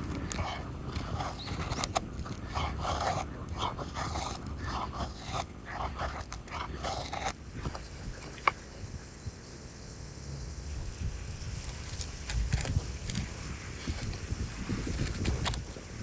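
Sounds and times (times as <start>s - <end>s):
knife blade scraping: 0.0s - 8.6s.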